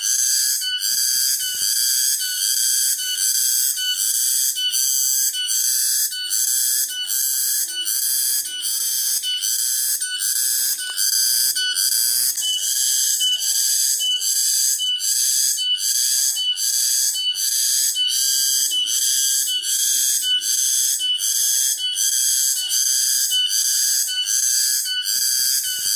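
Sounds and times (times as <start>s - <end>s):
cicadas singing: 0.0s - 25.9s.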